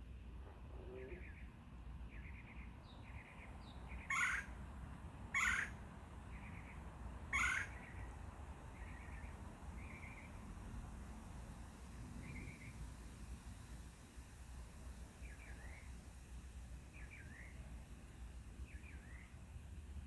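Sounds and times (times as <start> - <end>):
woodpecker churring calls: 3.9 - 4.6, 5.3 - 6.7, 7.3 - 8.0.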